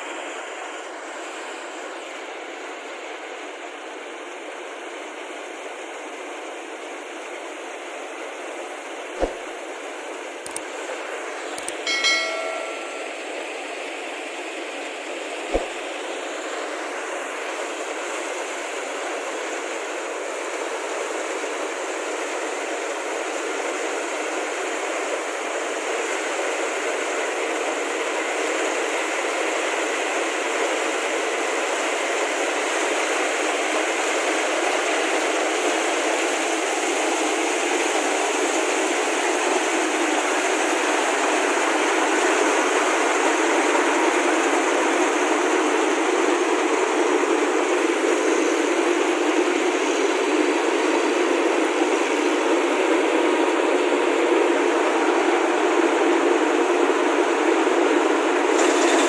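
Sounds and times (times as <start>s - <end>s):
combine harvester running: 0.0s - 59.0s
sharp click: 10.4s - 10.7s, 11.6s - 13.2s.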